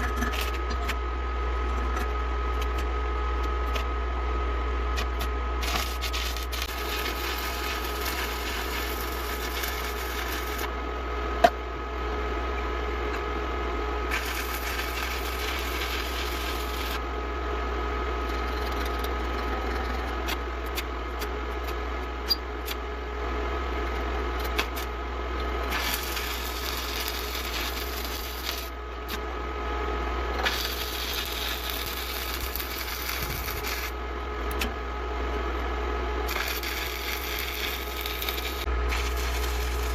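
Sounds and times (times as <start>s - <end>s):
steady low hum: 0.0s - 39.9s
welding arc hissing and crackling: 4.9s - 10.7s, 14.1s - 17.0s, 25.6s - 29.2s, 30.4s - 34.0s, 36.3s - 39.9s.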